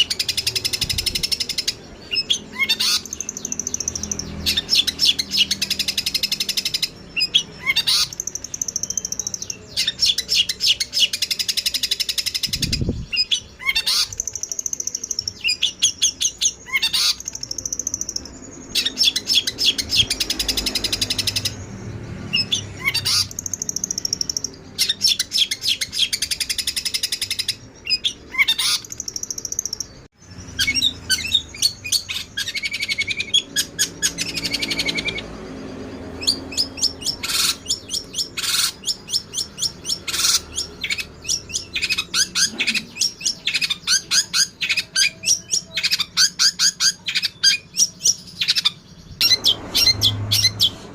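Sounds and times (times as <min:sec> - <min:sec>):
songbirds trilling and chattering: 0:00.0 - 0:50.9.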